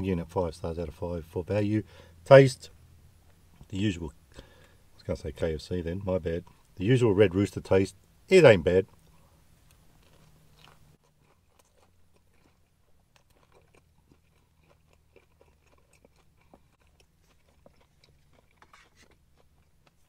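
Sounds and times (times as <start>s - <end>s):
faint chewing crunches: 6.3s - 6.8s, 8.8s - 20.0s.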